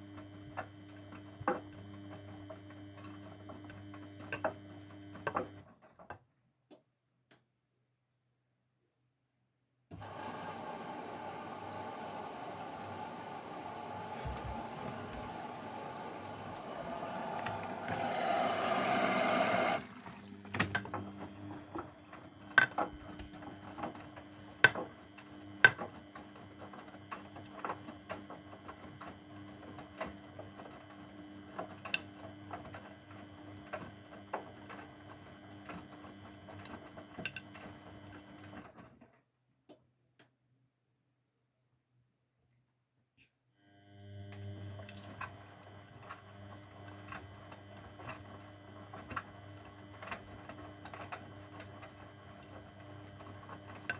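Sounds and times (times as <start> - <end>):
washing machine motor hum: 0.0 - 5.7, 9.9 - 38.7, 43.6 - 53.9
washing machine rushing noise: 10.0 - 25.0.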